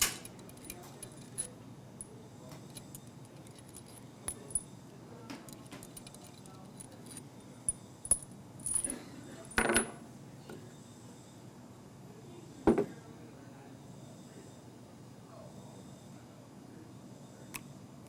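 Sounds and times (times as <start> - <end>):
small metal objects clinking: 8.0 - 9.8.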